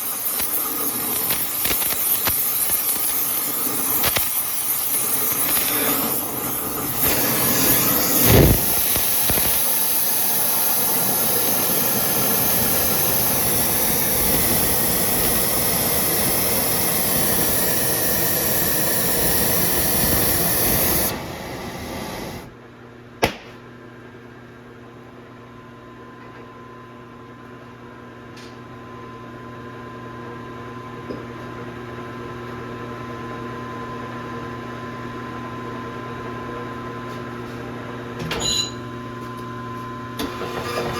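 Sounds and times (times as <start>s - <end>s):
welding arc hissing and crackling: 0.0s - 22.5s
machine hum: 0.0s - 22.6s
sharp click: 1.2s - 3.2s.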